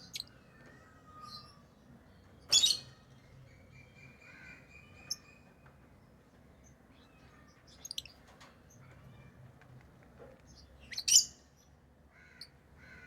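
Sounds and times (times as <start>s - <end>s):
lovebird chirping: 10.8s - 11.4s.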